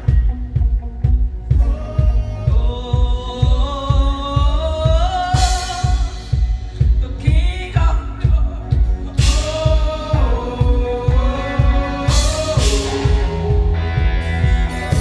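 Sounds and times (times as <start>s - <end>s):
kick drum beat: 0.0s - 15.0s
person singing: 0.0s - 15.0s
praise band playing: 8.2s - 15.0s.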